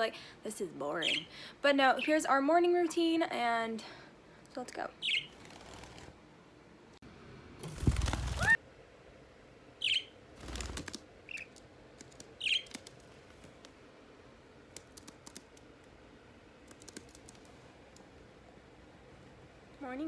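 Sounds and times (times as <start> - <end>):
parrot chirping: 5.0 - 5.9, 9.8 - 10.2, 11.3 - 11.6, 12.4 - 12.9
wings rustling flutter: 5.2 - 6.2, 7.6 - 8.6, 10.3 - 13.8.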